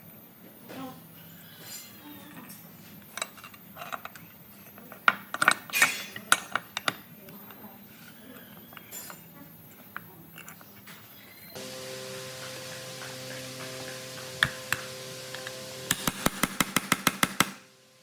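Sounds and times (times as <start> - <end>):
small metal parts clinking: 2.6 - 11.5.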